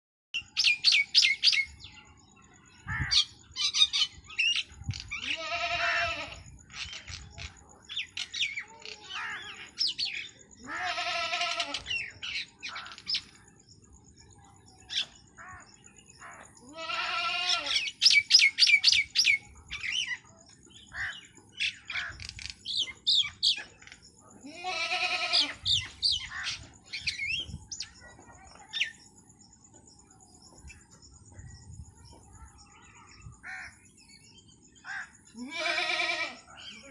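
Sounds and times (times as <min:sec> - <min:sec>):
birds chirping and twittering: 0:00.4 - 0:36.9
faint steady high tone: 0:25.2 - 0:35.5.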